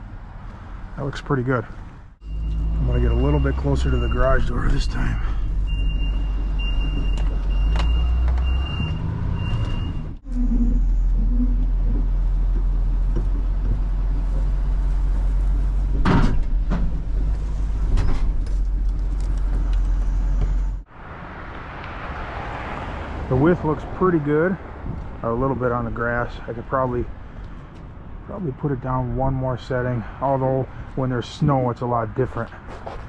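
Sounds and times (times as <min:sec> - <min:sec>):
reverse alarm beeping: 0:02.2 - 0:04.7, 0:05.7 - 0:11.5.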